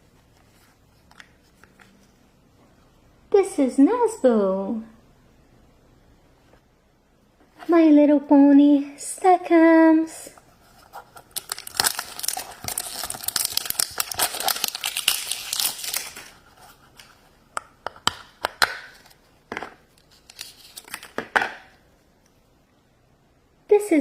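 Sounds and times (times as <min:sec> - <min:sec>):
crinkles and clicks handling contents: 0:10.4 - 0:21.4
packaging torn and crinkled: 0:11.0 - 0:16.4, 0:20.0 - 0:21.2.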